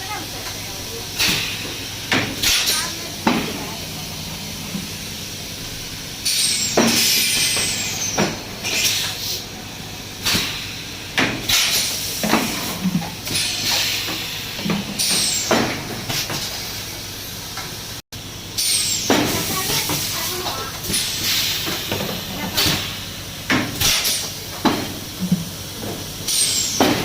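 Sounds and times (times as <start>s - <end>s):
steady machine hum: 0.0s - 27.0s
machine sharp knocks: 1.1s - 8.6s
compressed air hiss: 18.6s - 23.1s.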